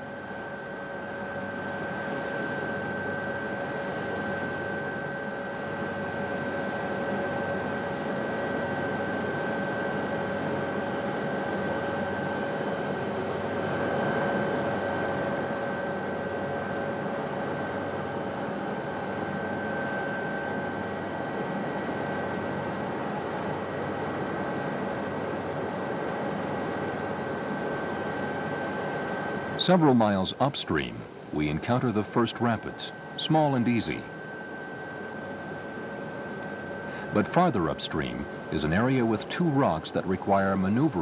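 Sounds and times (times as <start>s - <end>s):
helicopter flying: 0.0s - 41.0s.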